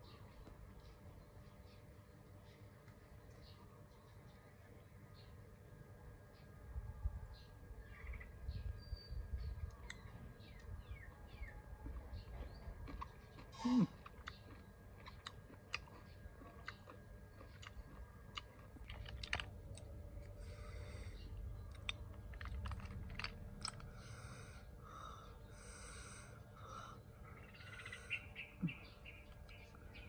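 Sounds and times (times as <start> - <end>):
chewing with clicks: 9.6 - 10.7, 11.3 - 20.6, 21.2 - 24.2
snail shells rustling: 21.7 - 24.0.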